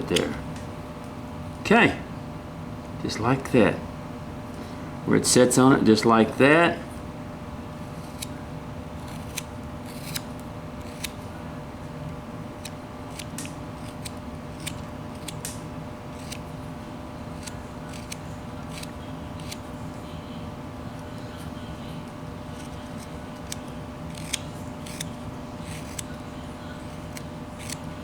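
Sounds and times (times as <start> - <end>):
knife cutting wood: 9.0 - 11.2, 12.6 - 16.6, 17.3 - 19.7, 22.5 - 26.2, 26.9 - 27.9.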